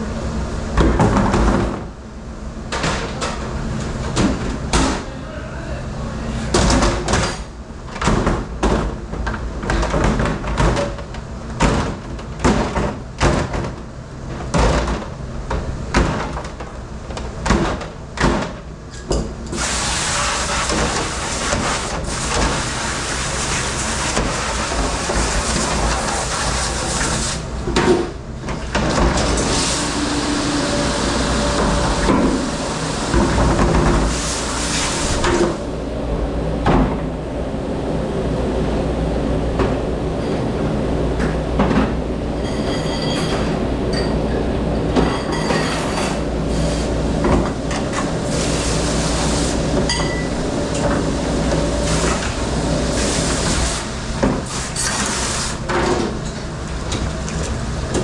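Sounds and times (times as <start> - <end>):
water spray rushing: 19.6 - 27.4, 29.4 - 35.6
machine hum: 28.9 - 42.8, 45.9 - 54.3
dishware clattering: 42.4 - 44.2.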